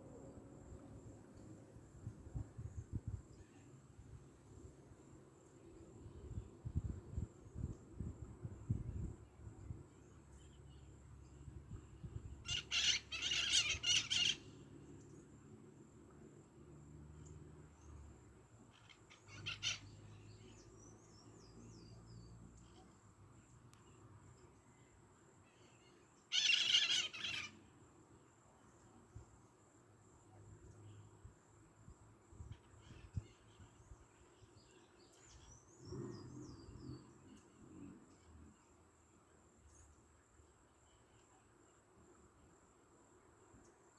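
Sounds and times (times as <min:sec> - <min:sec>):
bird harsh rasping calls: 0:26.3 - 0:27.5.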